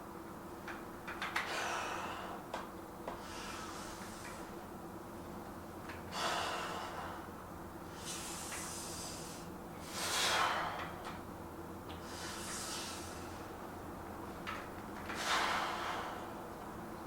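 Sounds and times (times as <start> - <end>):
low room hum: 0.0 - 17.0
man breathing hard: 1.5 - 2.5, 3.1 - 4.5, 6.1 - 11.1, 12.0 - 13.6, 15.1 - 16.5.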